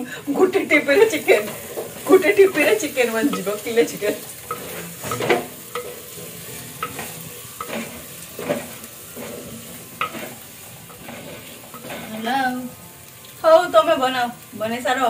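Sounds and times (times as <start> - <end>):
sizzling in hot oil: 0.0 - 15.0
spoon scraping clay pot: 1.4 - 12.3.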